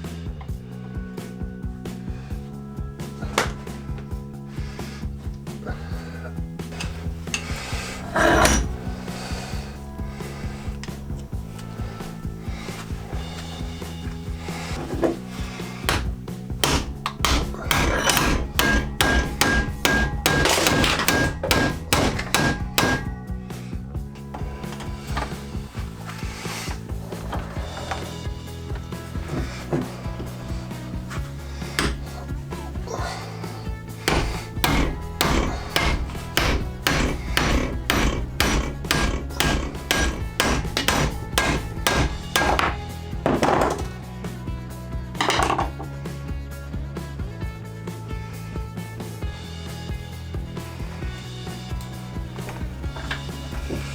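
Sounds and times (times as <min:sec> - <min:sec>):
hammer striking: 0:06.7 - 0:23.4, 0:26.2 - 0:43.8, 0:50.9 - 0:53.9
hammer blows on metal ringing: 0:15.7 - 0:23.4, 0:33.3 - 0:43.0.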